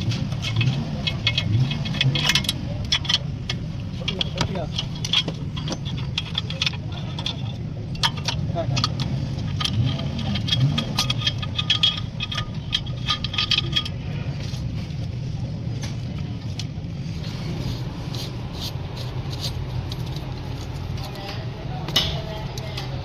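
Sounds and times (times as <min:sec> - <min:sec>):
metallic clicking rattle: 0:00.0 - 0:14.5
car engine running: 0:00.0 - 0:23.0.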